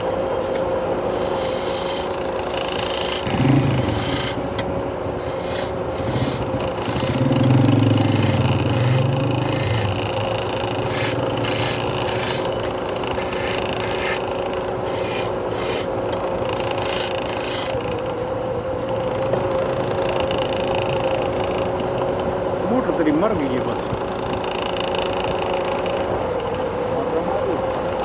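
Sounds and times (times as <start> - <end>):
wood lathe motor humming: 0.0 - 18.2
hand tool rasping spinning wood: 0.9 - 17.9.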